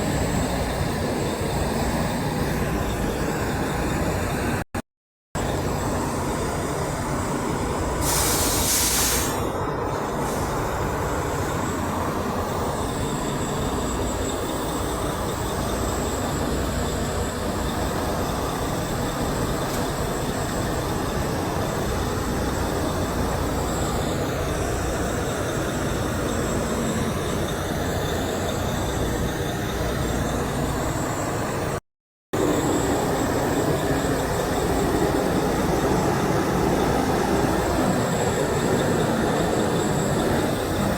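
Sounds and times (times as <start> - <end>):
short sharp hiss: 8.0 - 9.4.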